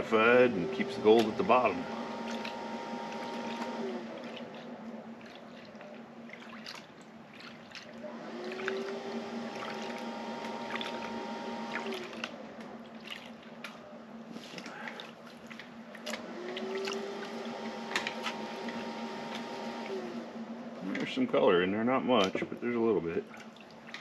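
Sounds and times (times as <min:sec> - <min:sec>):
steady low hum: 0:00.0 - 0:24.0
water sloshing in a pan: 0:00.7 - 0:17.5, 0:22.2 - 0:24.0.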